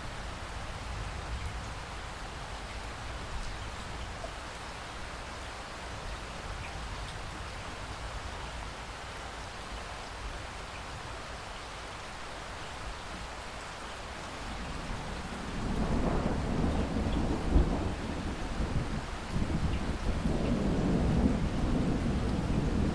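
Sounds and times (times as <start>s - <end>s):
steady rain falling: 0.0s - 22.9s
thunder rumbling: 14.6s - 22.9s
loud thunder crack: 15.5s - 22.9s.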